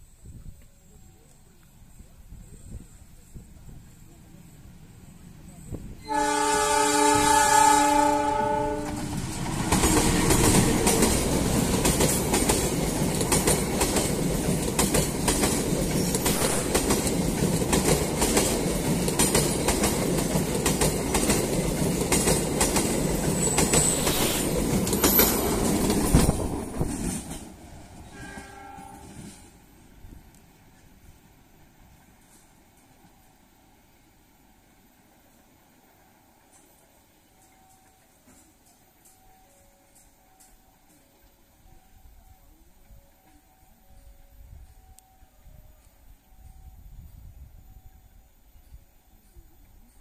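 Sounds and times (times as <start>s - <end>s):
train rumbling past: 2.0s - 50.0s
locomotive horn: 6.0s - 9.2s, 28.0s - 29.4s
distant train horn: 6.0s - 10.9s, 28.0s - 29.6s
wheels clicking over rails: 8.9s - 27.5s.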